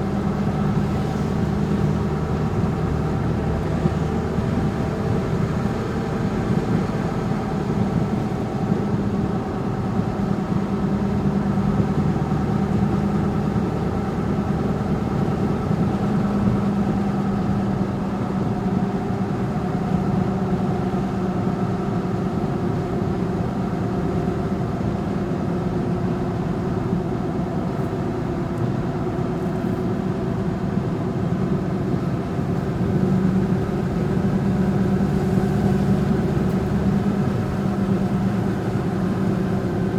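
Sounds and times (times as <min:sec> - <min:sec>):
vehicle engine running: 0:31.5 - 0:39.9.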